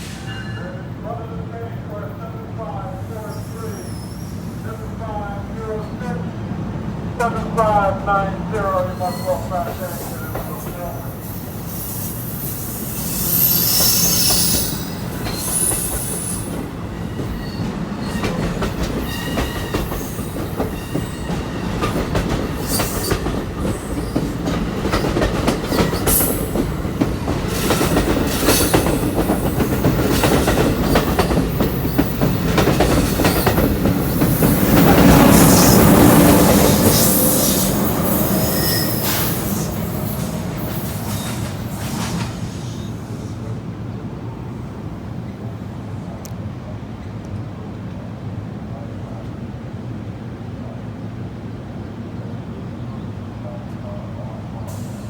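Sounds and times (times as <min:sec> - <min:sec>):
high-pitched wheel squeal: 0:11.2 - 0:16.5, 0:36.8 - 0:40.2
train wheels clicking over rail joints: 0:13.2 - 0:42.6.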